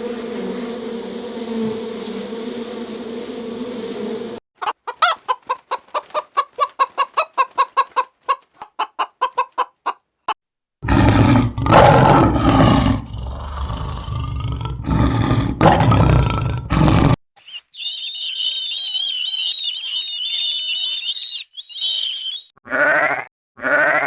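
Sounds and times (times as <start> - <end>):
chicken clucking: 4.6 - 10.4
rough animal call: 10.8 - 24.0.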